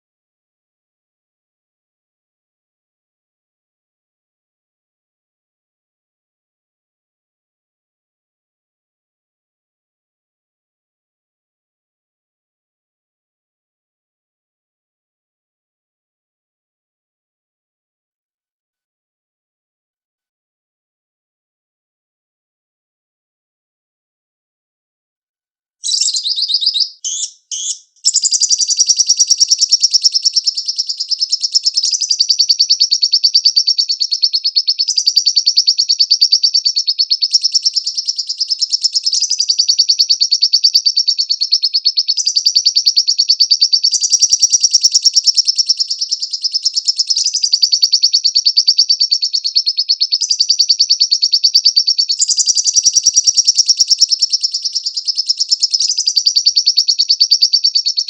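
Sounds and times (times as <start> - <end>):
lovebird chattering trill: 25.8 - 58.0.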